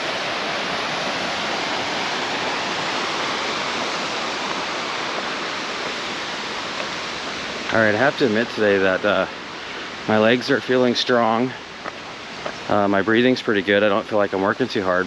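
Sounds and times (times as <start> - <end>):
waterfall pouring into creek: 0.0 - 15.0.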